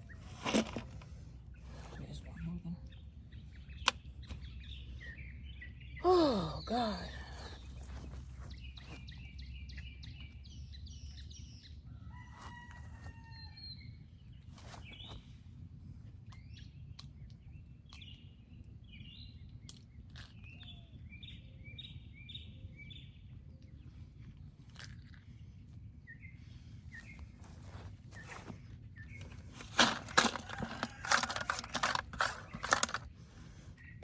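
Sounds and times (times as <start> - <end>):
rooster crowing: 12.0 - 13.6, 30.4 - 31.7.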